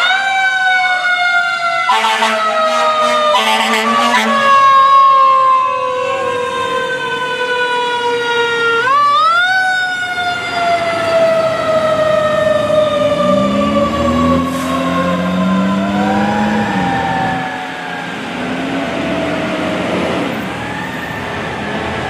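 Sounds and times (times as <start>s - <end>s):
lower siren tones: 0.0s - 22.0s
mechanical siren wailing: 0.0s - 22.0s.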